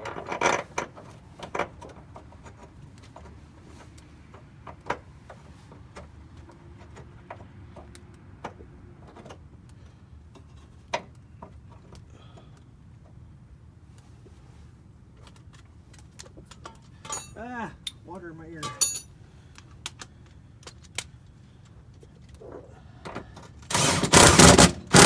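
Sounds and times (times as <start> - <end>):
low steady hum: 17.0 - 19.5
hand tools clicking on metal: 18.6 - 21.1.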